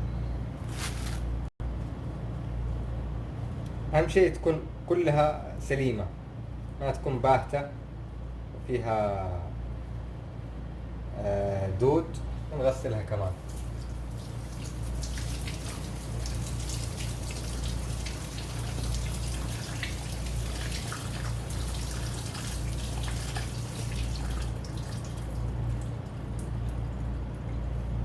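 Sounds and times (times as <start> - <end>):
tap water splashing on leaves: 13.4 - 27.6.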